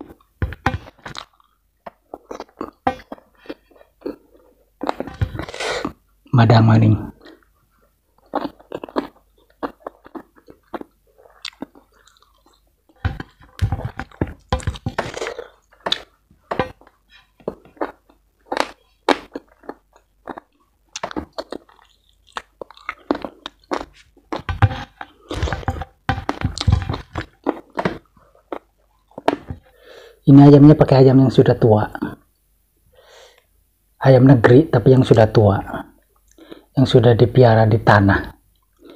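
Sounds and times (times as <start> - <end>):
mouth chewing and crunching: 0.0 - 6.0, 7.1 - 29.7.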